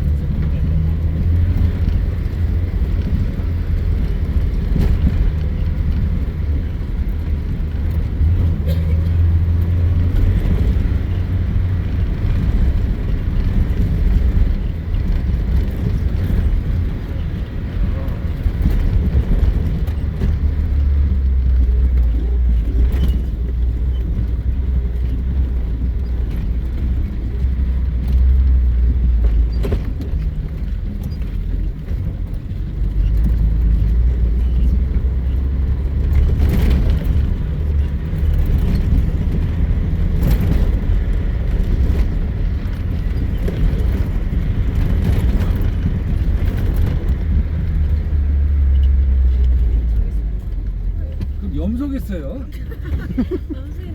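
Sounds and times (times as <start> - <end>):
vehicle engine and tyres rumbling: 0.0 - 53.9.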